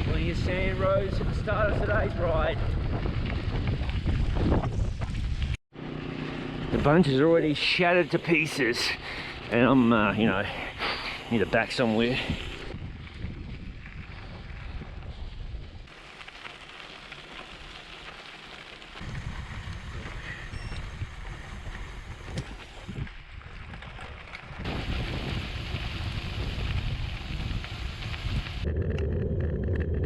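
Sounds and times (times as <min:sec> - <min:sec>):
wind on microphone: 0:00.0 - 0:05.6, 0:12.2 - 0:15.9, 0:19.0 - 0:30.0
bike tyres rolling on gravel: 0:00.0 - 0:30.0.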